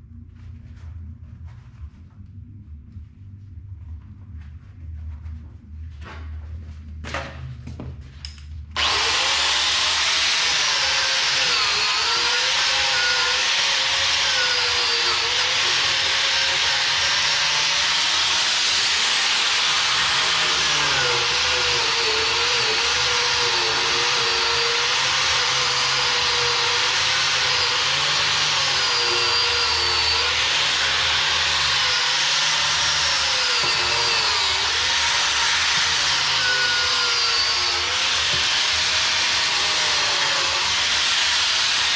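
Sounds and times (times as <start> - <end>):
wire wheel grinder on steel: 8.8 - 41.9.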